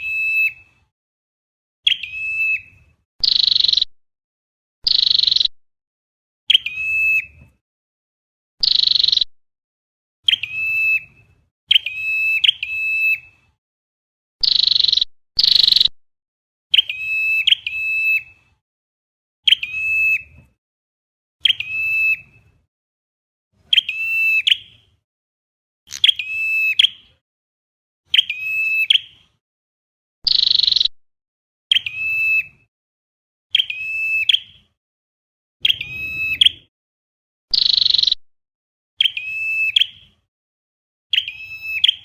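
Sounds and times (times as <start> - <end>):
high bird chirps: 0.0 - 0.7, 1.8 - 3.9, 4.8 - 5.5, 6.5 - 7.4, 8.6 - 9.3, 10.2 - 13.4, 14.4 - 15.9, 16.7 - 18.4, 19.4 - 20.3, 21.4 - 22.5, 23.7 - 24.8, 25.9 - 27.2, 28.1 - 29.2, 30.3 - 30.9, 31.7 - 32.6, 33.5 - 34.7, 35.6 - 36.7, 37.5 - 38.2, 39.0 - 40.2, 41.1 - 42.0.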